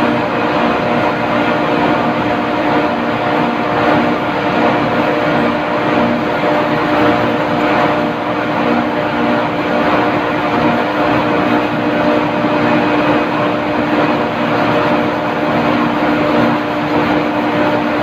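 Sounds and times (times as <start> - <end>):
loud machinery drone: 0.0 - 18.0.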